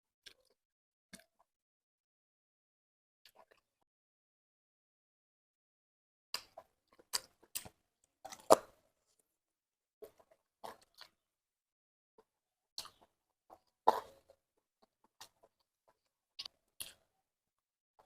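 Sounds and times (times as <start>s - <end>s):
chewing clicks and smacks: 0.2s - 1.5s, 3.2s - 3.8s, 6.3s - 8.8s, 10.0s - 11.2s, 12.2s - 17.2s.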